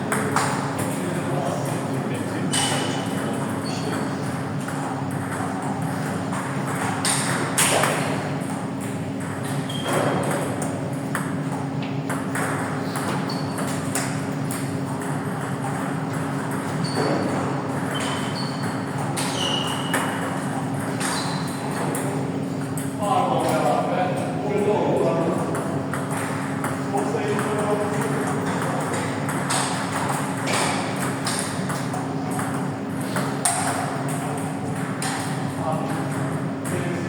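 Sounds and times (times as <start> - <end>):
shoe squeaks: 2.5 - 4.4, 9.4 - 10.2, 12.8 - 14.0, 16.6 - 21.8.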